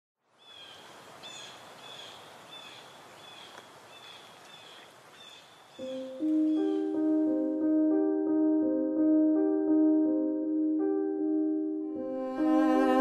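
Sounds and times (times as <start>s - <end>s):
steady outdoor hiss: 0.2s - 8.0s
bird chirping: 0.4s - 7.3s
soft piano music: 5.7s - 13.0s.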